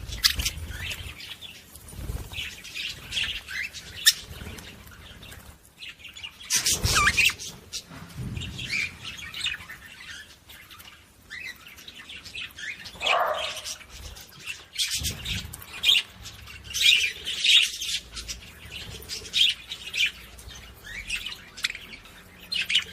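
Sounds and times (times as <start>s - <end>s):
budgerigars chirping: 0.0s - 1.6s, 2.3s - 5.2s, 6.4s - 7.6s, 11.3s - 22.9s.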